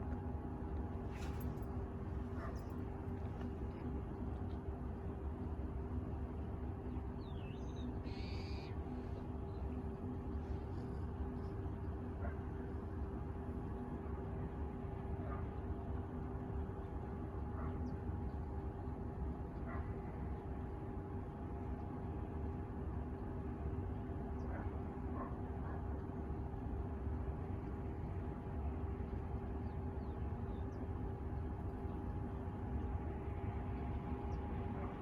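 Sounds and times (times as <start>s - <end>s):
distant low rumble and hum: 0.0s - 35.0s
faint high bird chirps: 7.2s - 8.8s.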